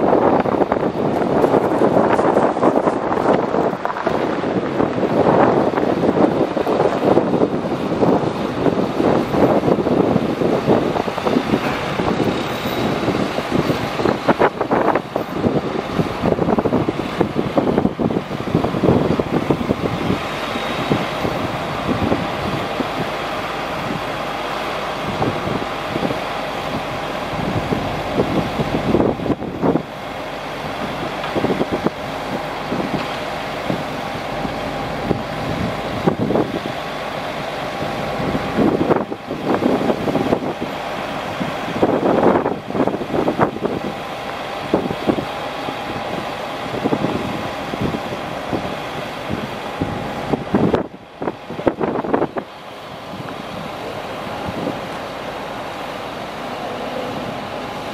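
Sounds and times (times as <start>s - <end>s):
truck running: 0.0s - 57.9s
clunks and rattles: 11.1s - 15.6s.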